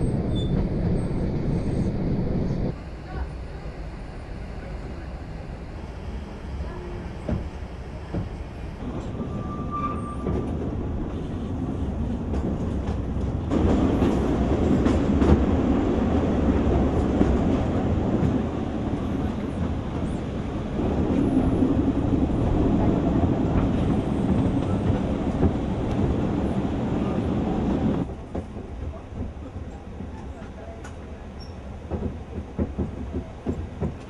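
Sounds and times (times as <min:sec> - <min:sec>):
train wheels clattering on rails: 0:07.2 - 0:34.0.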